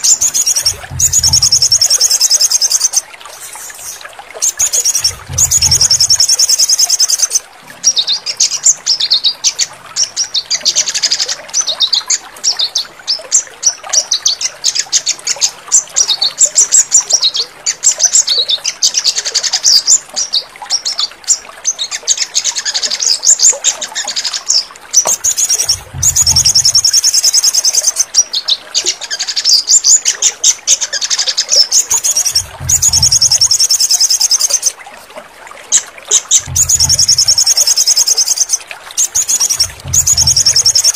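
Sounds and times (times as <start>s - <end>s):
birds trilling and chirping: 0.0s - 34.8s, 35.7s - 40.9s
short low hum: 32.4s - 33.3s.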